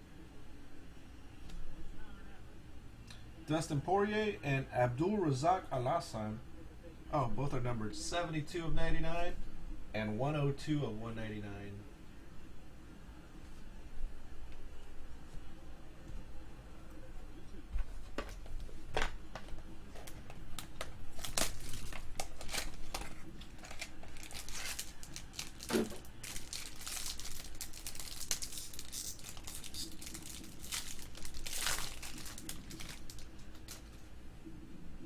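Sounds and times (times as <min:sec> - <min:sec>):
cards clicking and rustling: 0:18.1 - 0:34.0
foil wrapping crinkling and tearing: 0:20.0 - 0:34.0.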